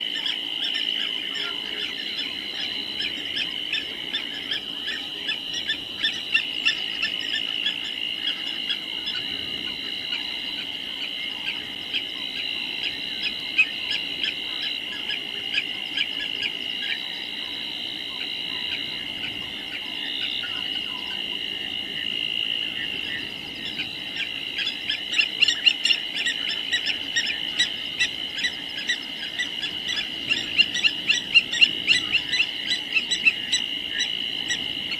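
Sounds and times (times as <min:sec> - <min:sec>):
insects and frogs calling: 0:00.0 - 0:34.9.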